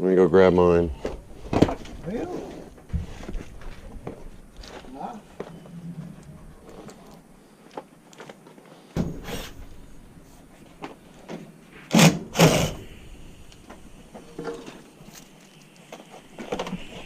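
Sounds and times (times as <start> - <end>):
knocks and clunks: 0.9 - 5.5, 9.0 - 15.0.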